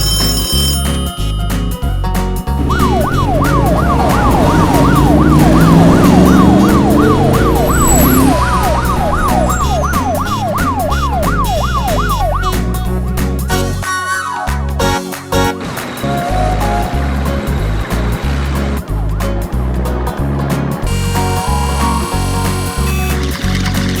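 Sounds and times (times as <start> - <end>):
background music with beat: 0.0 - 24.0
low tones climbing in pitch: 1.9 - 15.0
siren yelping: 2.6 - 12.8.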